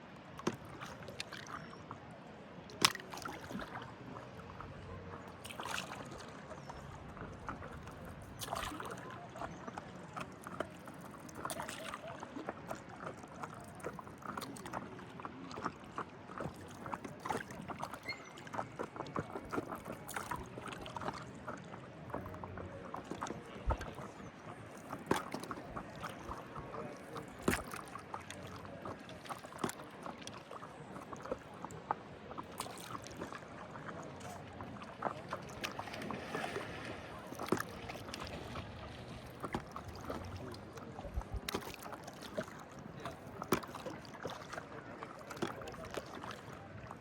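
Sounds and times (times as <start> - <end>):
water lapping at shore: 0.0 - 47.0.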